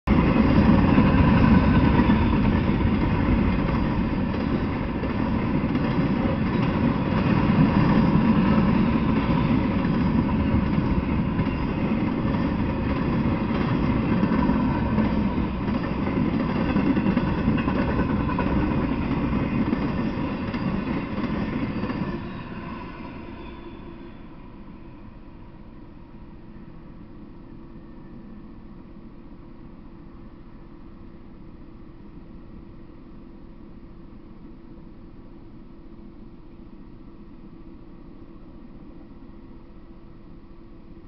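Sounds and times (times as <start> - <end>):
freight train wheels rumbling on rails: 0.1 - 29.0.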